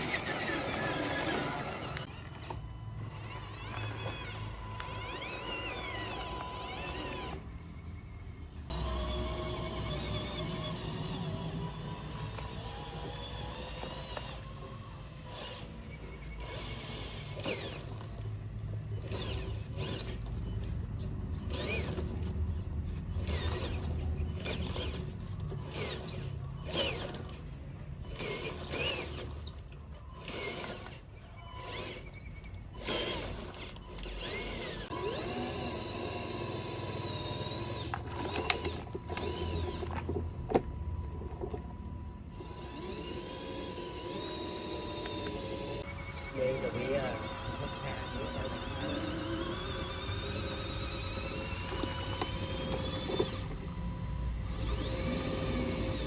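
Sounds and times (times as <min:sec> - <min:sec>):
small electric motors whining: 0:00.0 - 0:56.0.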